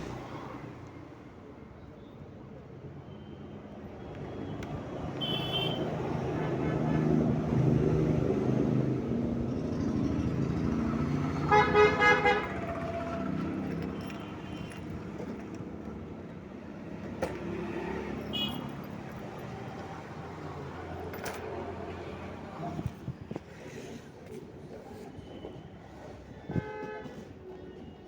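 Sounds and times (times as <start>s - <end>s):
vehicle horn honking: 5.2s - 7.0s, 11.5s - 12.6s
road traffic din: 7.2s - 26.1s.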